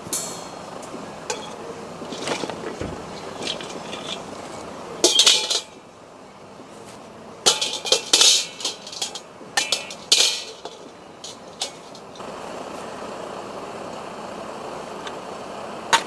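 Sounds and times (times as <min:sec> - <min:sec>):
hard objects clinking and scraping: 0:01.3 - 0:05.8, 0:06.8 - 0:12.2.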